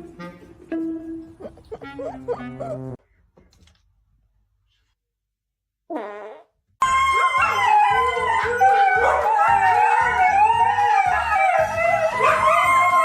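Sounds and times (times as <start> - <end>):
dog howling: 6.8 - 13.0.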